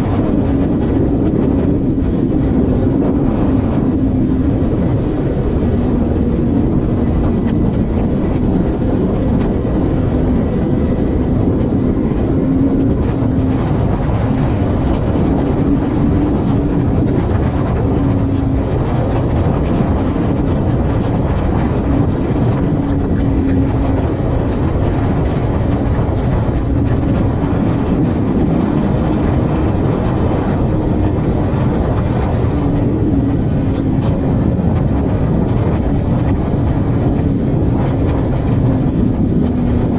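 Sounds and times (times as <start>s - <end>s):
low engine hum: 0.0s - 39.9s
road noise: 0.0s - 39.9s
wind noise: 0.0s - 39.9s.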